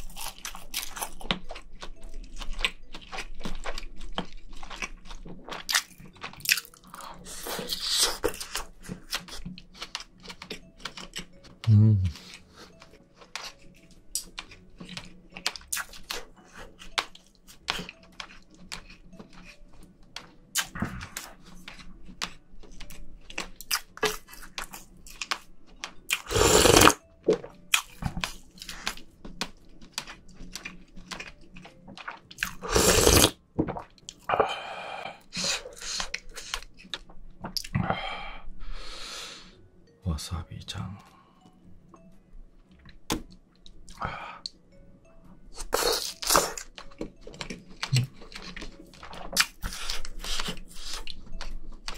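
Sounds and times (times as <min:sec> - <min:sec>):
wet chewing and lip-smacking: 0:00.0 - 0:34.4, 0:35.2 - 0:37.8, 0:45.2 - 0:51.9
loud slurps: 0:26.3 - 0:27.0, 0:32.6 - 0:33.3
small sticky clicks: 0:27.8 - 0:32.2.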